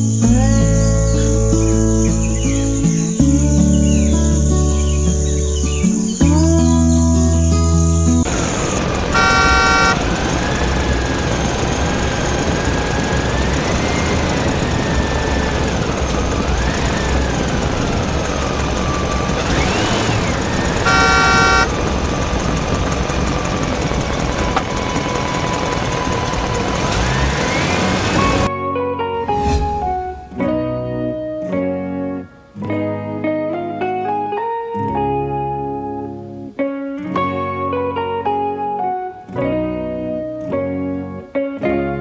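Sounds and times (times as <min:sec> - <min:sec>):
vehicle engine running: 0:08.3 - 0:28.5
short horn honks: 0:08.4 - 0:14.2, 0:18.9 - 0:21.9.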